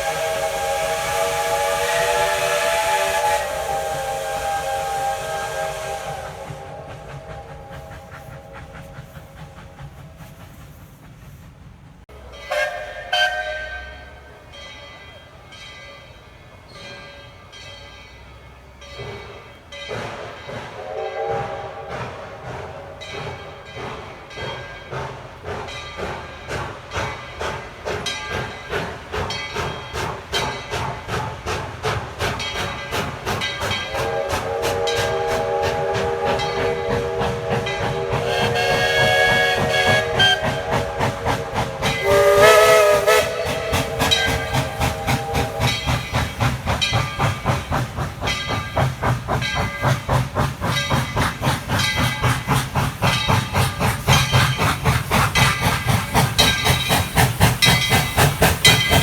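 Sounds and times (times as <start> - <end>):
steam locomotive whistle: 0.0 - 11.4, 12.1 - 14.5, 20.0 - 25.0, 32.2 - 59.0
steam locomotive exhaust chuffs: 0.0 - 59.0.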